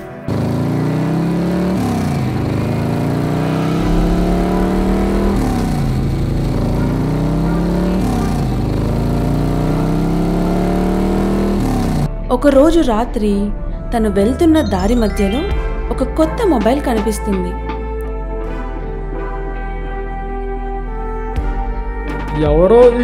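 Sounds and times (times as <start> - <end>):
car engine accelerating through gears: 0.0 - 12.2.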